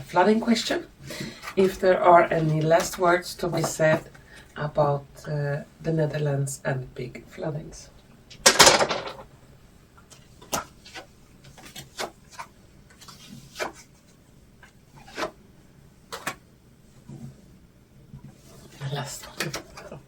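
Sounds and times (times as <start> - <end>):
cards tapping and sliding: 10.1 - 13.9, 16.1 - 16.4.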